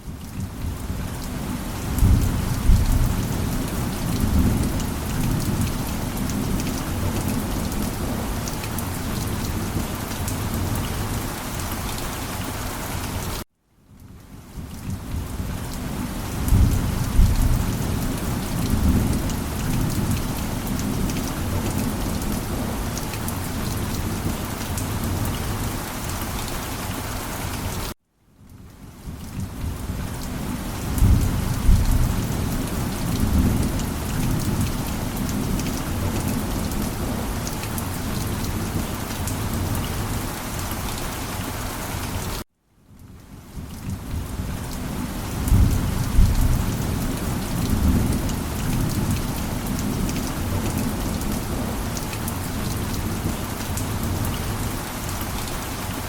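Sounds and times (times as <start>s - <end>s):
heavy rain falling: 0.0s - 13.4s, 14.1s - 28.0s, 28.8s - 42.5s, 43.3s - 56.0s
low thunder rumbling: 1.9s - 8.2s, 16.4s - 22.9s, 30.8s - 37.4s, 45.4s - 51.8s.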